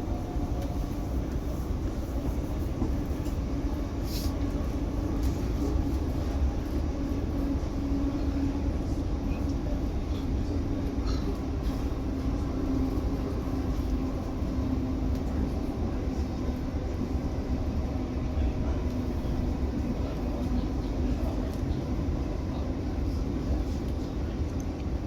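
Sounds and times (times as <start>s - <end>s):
train carriage rumble: 0.0s - 25.0s.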